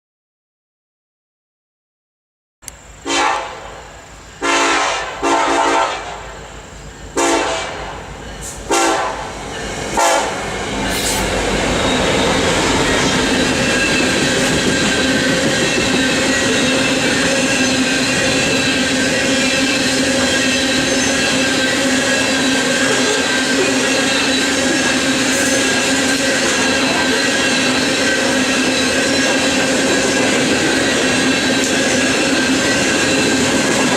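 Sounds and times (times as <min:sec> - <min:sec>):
locomotive horn blasts: 0:03.1 - 0:03.8, 0:04.4 - 0:06.4, 0:07.2 - 0:08.0, 0:08.7 - 0:09.3, 0:09.9 - 0:10.4
train wheels clattering and squealing: 0:06.3 - 0:33.9.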